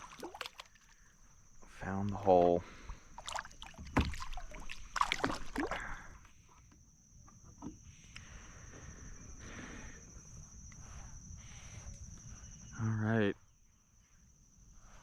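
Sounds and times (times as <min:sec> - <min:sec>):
water lapping: 0:00.0 - 0:01.4, 0:02.7 - 0:06.2
water splashing around kayak: 0:00.0 - 0:06.2.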